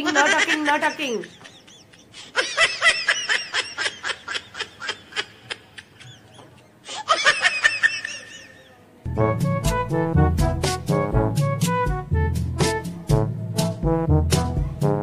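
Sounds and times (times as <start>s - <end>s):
person giggling: 0.0s - 8.8s.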